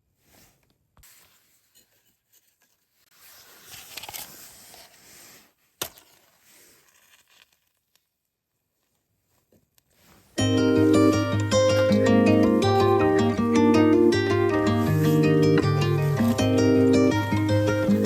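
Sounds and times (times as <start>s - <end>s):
handling rustles: 0.0s - 10.5s.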